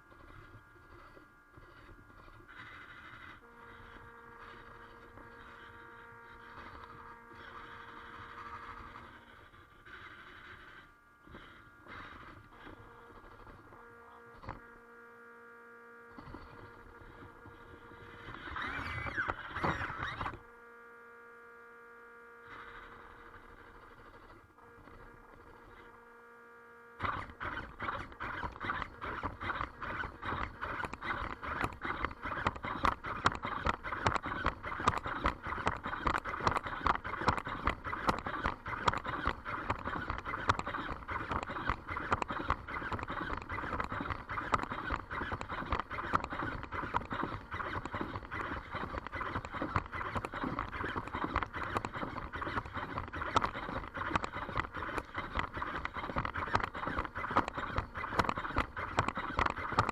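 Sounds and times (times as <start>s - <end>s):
robot leg motors whirring: 0.0s - 14.7s, 16.1s - 20.4s, 27.0s - 59.9s
plastic feet tapping on hard floor: 53.0s - 59.9s.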